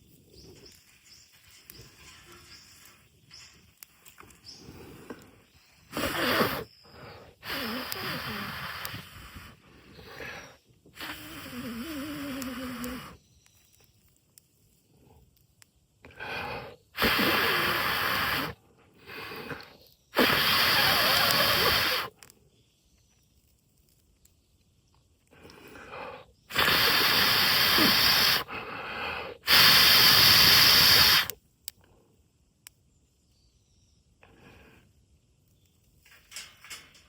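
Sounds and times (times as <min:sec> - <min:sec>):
person blowing hard on ember: 0:05.8 - 0:13.2, 0:16.2 - 0:19.6, 0:20.2 - 0:22.2, 0:25.4 - 0:31.4
quick breath in: 0:25.4 - 0:31.4.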